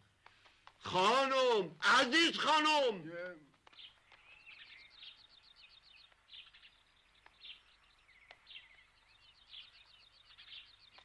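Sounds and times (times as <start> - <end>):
faint birdsong chirps and trills: 3.3 - 11.0.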